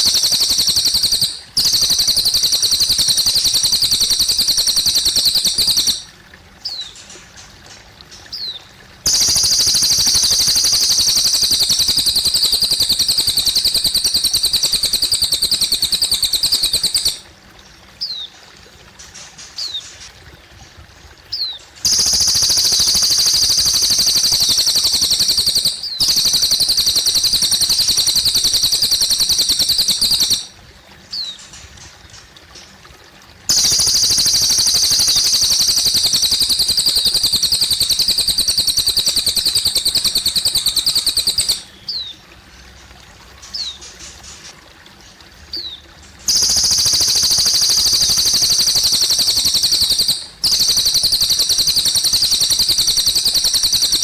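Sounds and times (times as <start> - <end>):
songbird singing high trills: 0.0 - 7.0, 8.3 - 17.2, 21.3 - 31.4, 33.5 - 42.1, 45.6 - 54.0
trickling water: 0.0 - 54.0.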